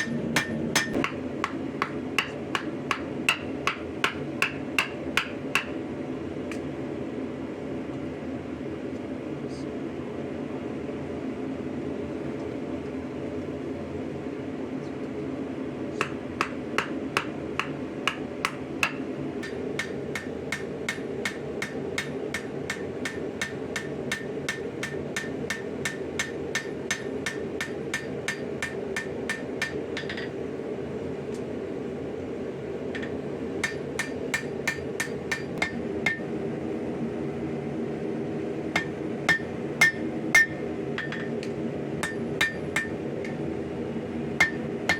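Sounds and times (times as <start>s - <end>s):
hammer blows on anvil: 0.0s - 5.8s, 33.0s - 36.2s, 38.8s - 41.4s, 42.0s - 43.0s, 44.4s - 44.9s
steady hum: 0.0s - 44.9s.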